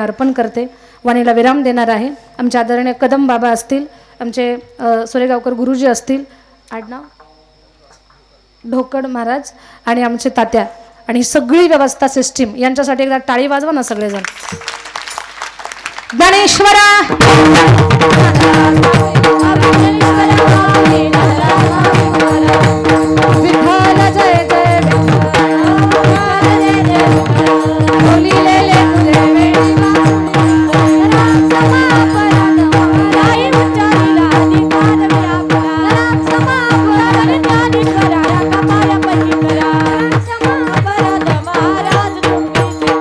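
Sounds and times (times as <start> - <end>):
fast hand-drum strokes: 14.3 - 43.0
voices singing: 17.4 - 43.0.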